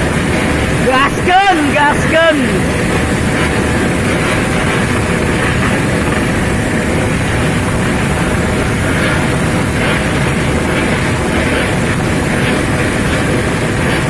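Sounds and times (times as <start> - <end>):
rushing air: 0.0 - 14.0
vehicle engine noise: 0.0 - 14.0.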